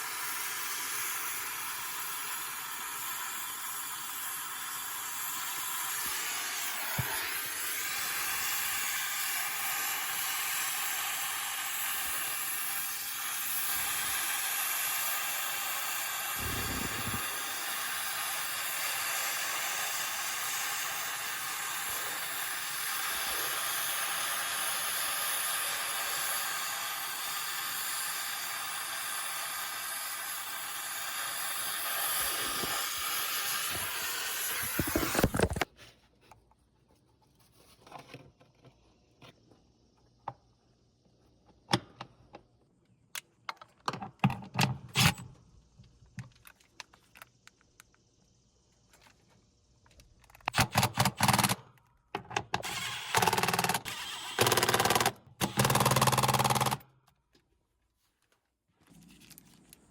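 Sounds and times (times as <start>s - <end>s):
steady hiss: 0.0s - 35.7s.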